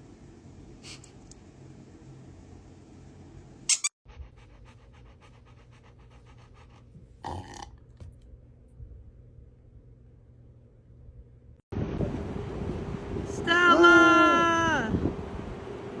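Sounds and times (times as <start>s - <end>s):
dog panting: 4.1s - 7.2s.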